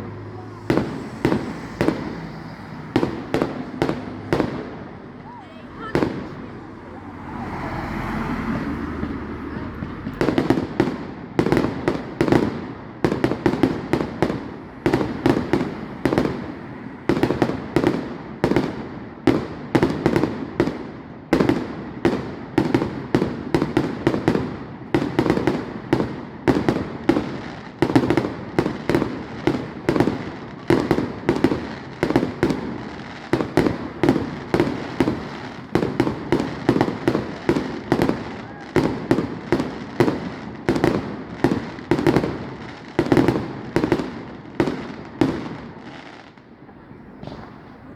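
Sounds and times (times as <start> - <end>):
fireworks bangs and cracks: 0.0 - 47.9
fireworks hiss and rumble: 0.0 - 47.9.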